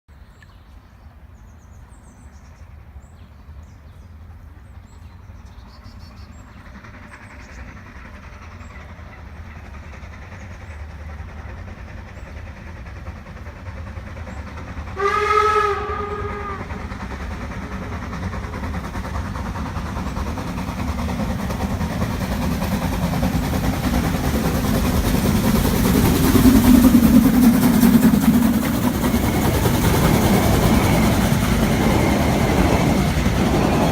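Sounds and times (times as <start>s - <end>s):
steam locomotive running: 1.1s - 33.9s
steam hiss: 5.9s - 33.9s
steam whistle blast: 15.0s - 16.8s.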